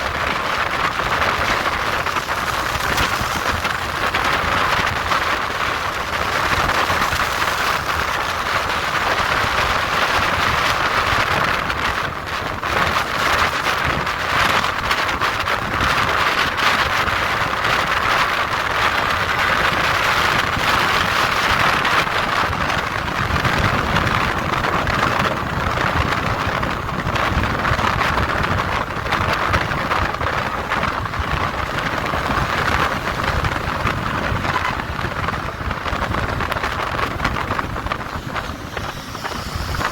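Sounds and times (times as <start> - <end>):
motorcycle engine: 0.0 - 16.7, 29.7 - 39.9
road noise: 0.0 - 39.9
wind rushing over microphone: 0.0 - 39.9.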